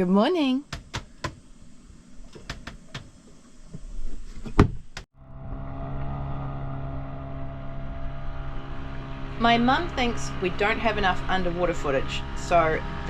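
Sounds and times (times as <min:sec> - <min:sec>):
knocks and clicks of handling: 0:02.3 - 0:03.1
low engine hum: 0:05.1 - 0:13.0.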